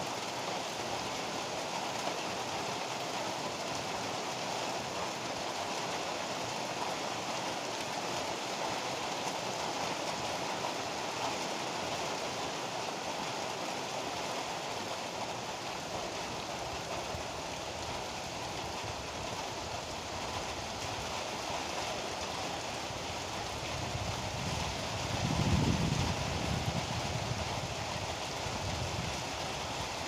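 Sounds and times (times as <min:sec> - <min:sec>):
heavy rain pouring: 0:00.0 - 0:30.0
low rumble of thunder: 0:23.7 - 0:29.7.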